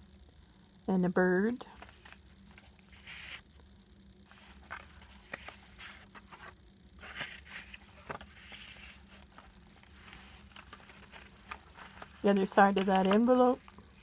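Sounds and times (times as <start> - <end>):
paper rustling: 1.8 - 3.4, 4.3 - 14.0
light clicks of pages: 4.3 - 13.8.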